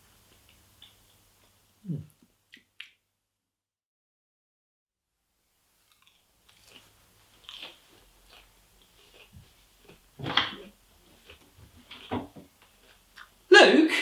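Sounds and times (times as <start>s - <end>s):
person chewing and crunching: 5.8s - 13.5s.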